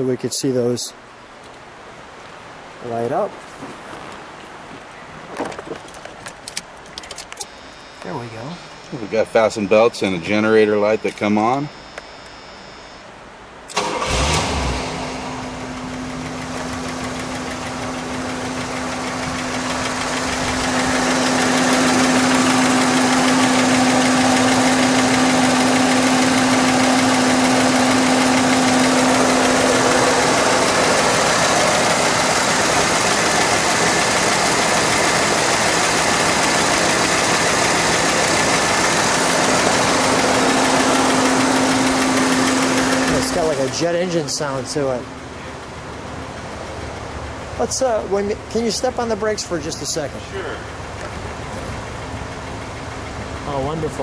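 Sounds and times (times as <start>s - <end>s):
car engine idling: 13.6s - 54.0s
car engine starting: 13.7s - 54.0s.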